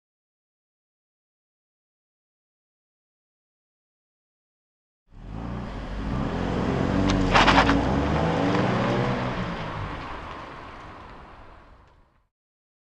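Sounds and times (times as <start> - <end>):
car engine revving past: 5.2 - 11.6.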